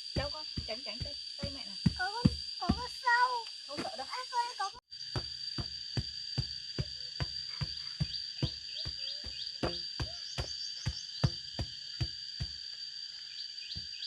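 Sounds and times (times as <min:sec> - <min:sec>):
high-pitched insect drone: 0:00.0 - 0:14.0
sharp knocks: 0:05.1 - 0:12.7.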